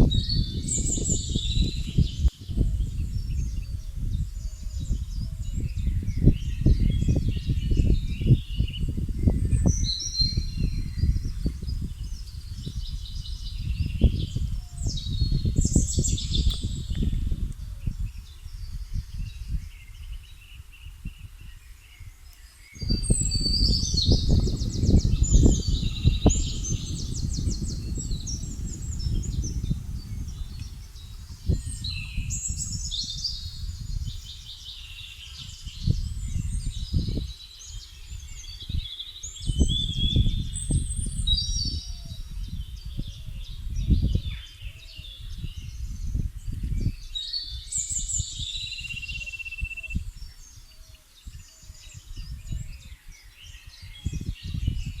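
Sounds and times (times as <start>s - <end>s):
low gusty rumble: 0.0s - 20.1s, 22.8s - 37.2s
small birds singing: 0.0s - 55.0s.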